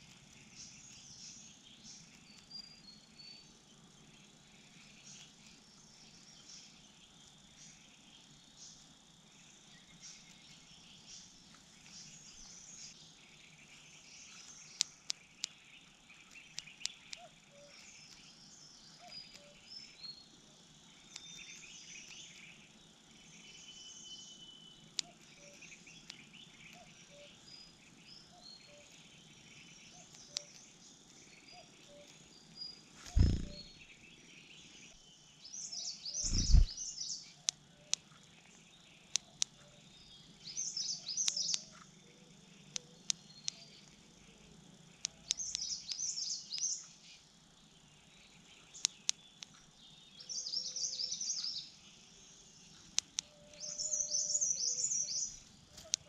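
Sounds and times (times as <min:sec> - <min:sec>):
birds chirping: 0:00.0 - 0:56.0
sharp clicks: 0:33.0 - 0:33.7, 0:36.2 - 0:36.7, 0:45.0 - 0:46.7
faint low repeating note: 0:33.1 - 0:33.7, 0:36.3 - 0:36.7
loud low thumps: 0:33.1 - 0:33.7.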